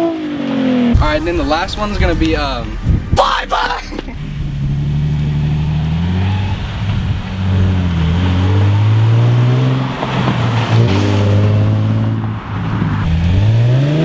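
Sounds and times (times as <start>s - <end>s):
car engine accelerating hard: 0.0s - 14.0s.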